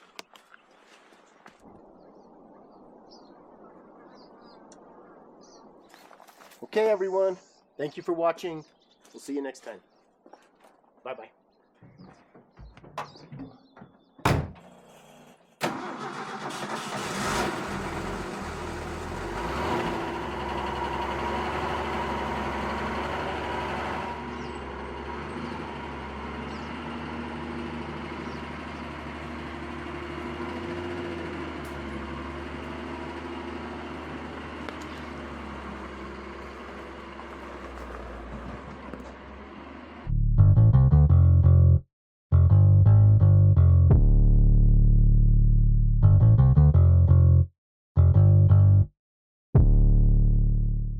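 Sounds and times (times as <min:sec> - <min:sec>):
pickup truck engine starting and revving: 0:15.6 - 0:40.1.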